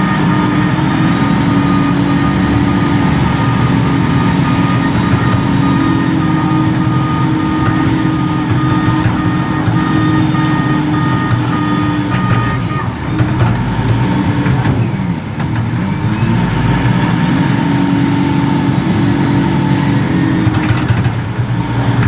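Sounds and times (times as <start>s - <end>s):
steady whine: 0.0s - 13.7s
heavy diesel engine running: 0.0s - 22.0s.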